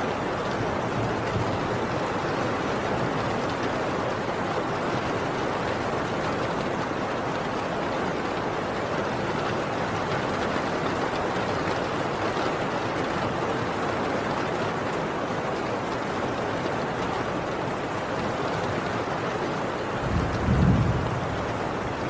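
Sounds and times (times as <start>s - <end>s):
heavy rain on a tin roof: 0.0s - 22.0s
distant thunder rumble: 20.0s - 22.0s.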